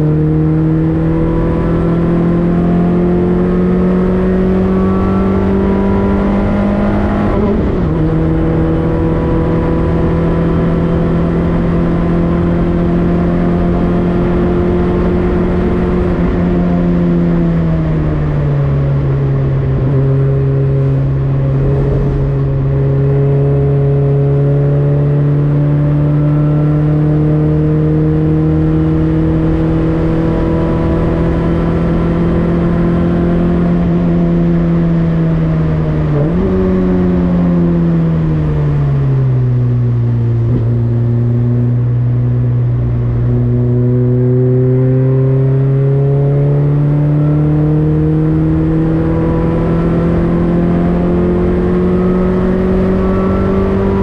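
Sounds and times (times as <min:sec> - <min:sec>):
race car engine under load: 0:42.7 - 0:54.0.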